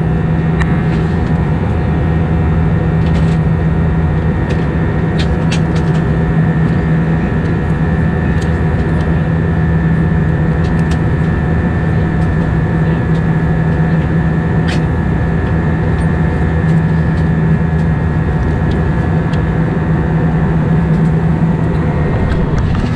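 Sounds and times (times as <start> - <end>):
jet engines drone in cabin: 0.0 - 22.9.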